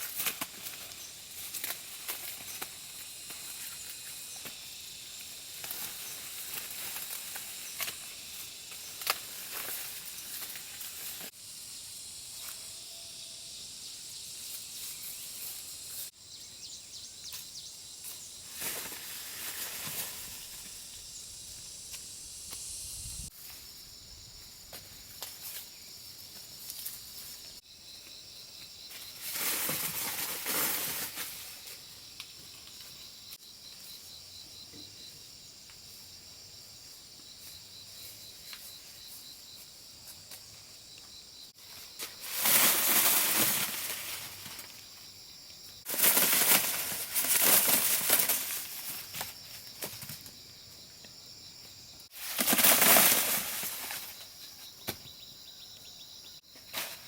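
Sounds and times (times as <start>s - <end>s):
rustling of dry foliage: 0.0s - 11.4s, 17.3s - 27.6s, 28.8s - 34.2s, 41.5s - 50.5s, 52.0s - 55.0s, 56.6s - 57.0s
insects chirring: 0.0s - 57.0s.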